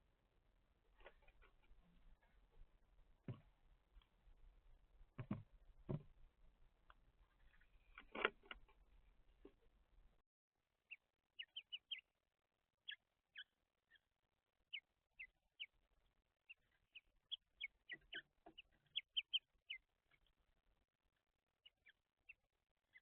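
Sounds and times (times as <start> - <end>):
small birds giving sharp calls: 16.5 - 20.4.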